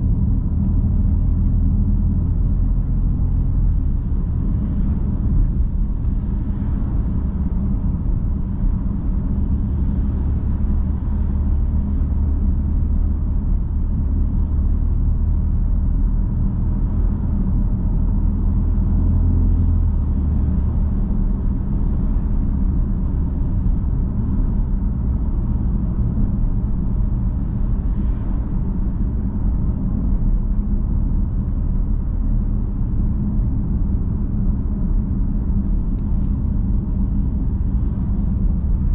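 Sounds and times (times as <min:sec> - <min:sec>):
car engine cruising: 0:00.0 - 0:38.9.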